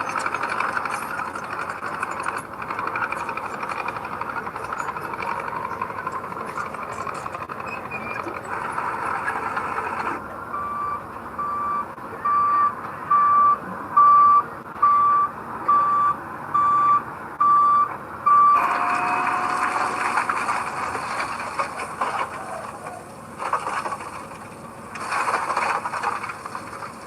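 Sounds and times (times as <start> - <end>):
heavy machinery running: 0.0 - 15.7, 17.9 - 27.0
reverse warning alarm beeping: 6.4 - 20.5.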